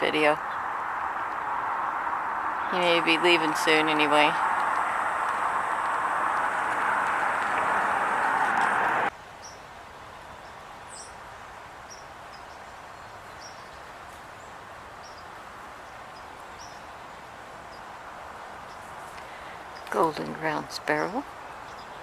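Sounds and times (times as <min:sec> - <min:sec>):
wind rushing on microphone: 0:00.0 - 0:09.1
songbirds chipping: 0:00.0 - 0:11.2, 0:11.8 - 0:22.0.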